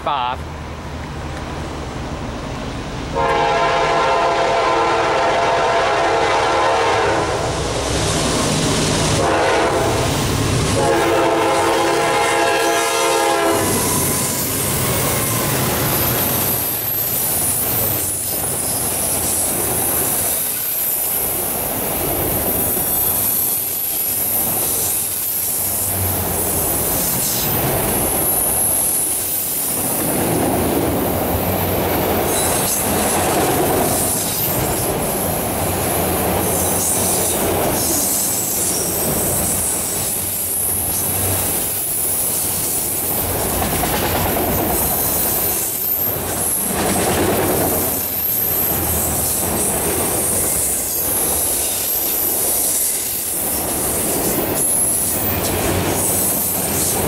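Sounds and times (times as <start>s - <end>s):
locomotive air horn blasts: 3.2s - 7.5s, 9.2s - 10.1s, 10.8s - 13.8s
wheels clacking over rails: 43.2s - 48.5s.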